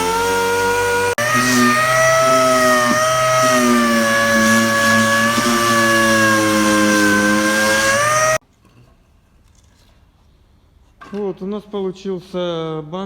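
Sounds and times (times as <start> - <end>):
angle grinder sanding plastic: 0.0 - 8.4.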